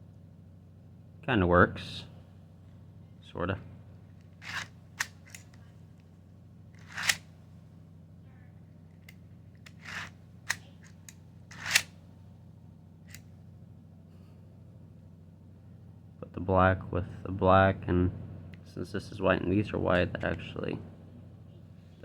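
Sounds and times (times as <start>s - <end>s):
plastic clicks: 4.2s - 6.1s, 9.0s - 11.9s.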